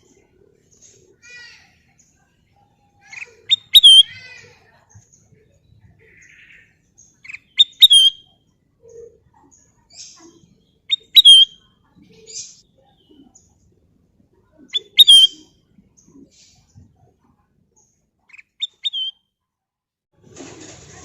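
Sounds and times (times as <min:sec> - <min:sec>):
bulbul whistling: 0:03.2 - 0:04.1, 0:07.3 - 0:08.3, 0:10.9 - 0:11.6, 0:14.7 - 0:15.5, 0:18.6 - 0:19.2.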